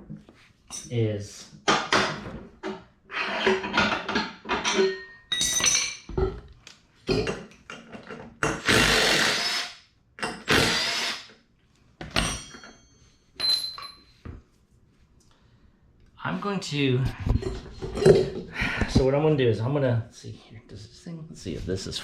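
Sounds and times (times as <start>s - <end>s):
metallic ring: 12.2s - 14.2s.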